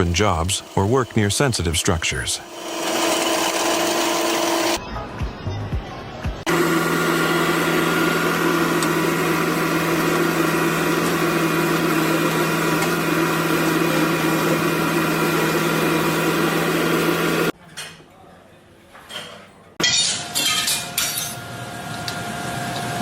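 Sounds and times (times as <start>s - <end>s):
construction machinery engine whining: 0.0s - 4.8s, 6.4s - 17.5s
rough grinding noise: 0.0s - 4.8s.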